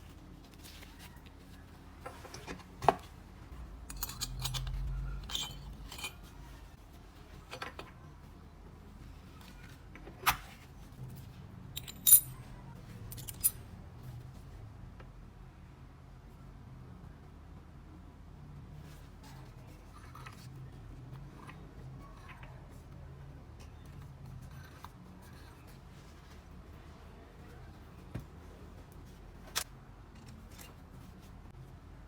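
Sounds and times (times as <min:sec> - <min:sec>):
metal parts and tools clinking: 0:03.6 - 0:06.7, 0:11.7 - 0:13.7
ringing metal clink: 0:11.8 - 0:12.4, 0:13.1 - 0:13.6.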